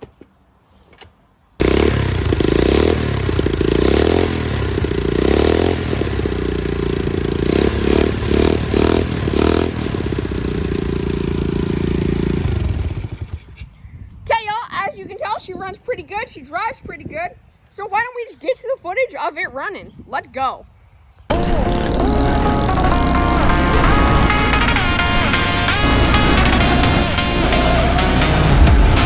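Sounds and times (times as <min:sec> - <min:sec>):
pit bike engine revving: 0:01.6 - 0:13.6, 0:21.3 - 0:29.0.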